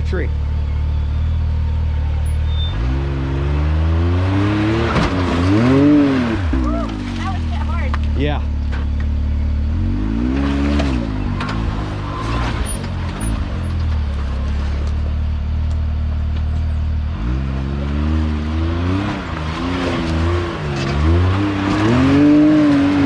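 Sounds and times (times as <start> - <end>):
utv engine revving: 0.0 - 23.0.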